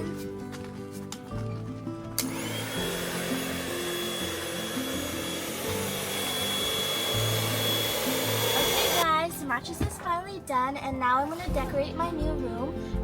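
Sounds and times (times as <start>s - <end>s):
background music: 0.0s - 13.0s
electric air pump whirring: 2.2s - 9.0s.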